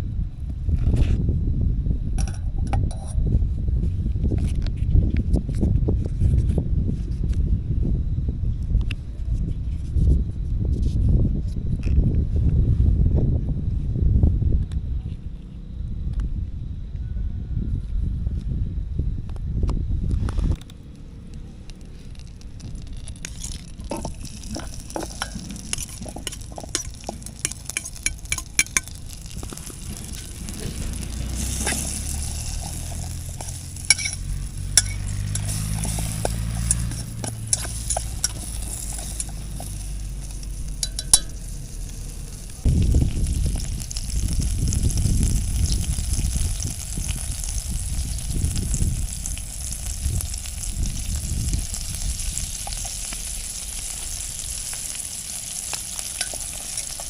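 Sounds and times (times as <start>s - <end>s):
low rumble: 11.7s - 57.0s
low hum: 20.9s - 47.4s
food sizzling in a frying pan: 21.8s - 57.0s
utensil clinking against pan: 23.8s - 29.1s, 32.9s - 39.8s, 40.8s - 41.4s, 56.2s - 57.0s.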